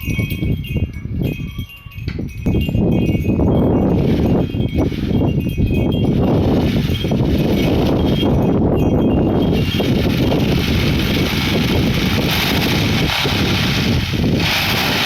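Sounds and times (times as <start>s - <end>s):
faint high chiming tones: 0.0s - 6.3s
wind buffeting microphone: 0.0s - 15.0s.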